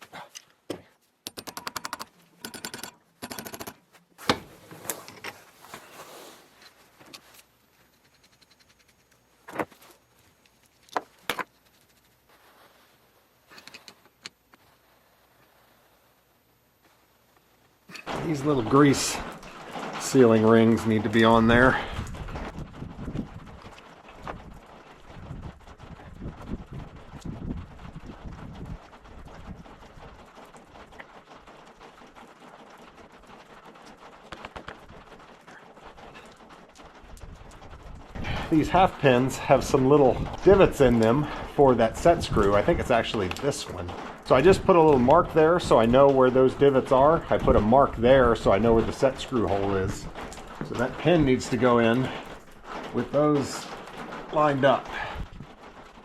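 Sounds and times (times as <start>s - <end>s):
small metal parts clicking: 1.2s - 3.8s.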